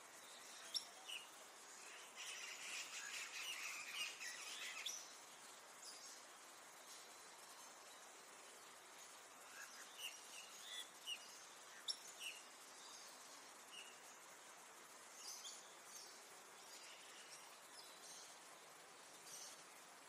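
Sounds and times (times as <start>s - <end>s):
steady hiss: 0.0s - 20.0s
bird chirps: 0.2s - 5.2s, 9.4s - 14.1s.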